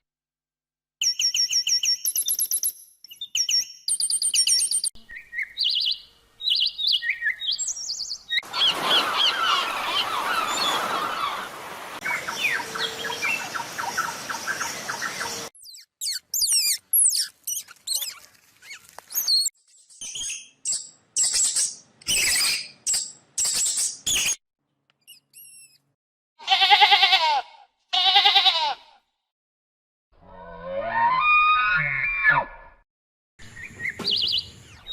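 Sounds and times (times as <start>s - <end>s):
hissy squealing calls: 8.5s - 11.6s
animal squeaks and chirps: 15.6s - 24.4s, 25.0s - 25.9s
long wavering bleats: 26.4s - 29.0s.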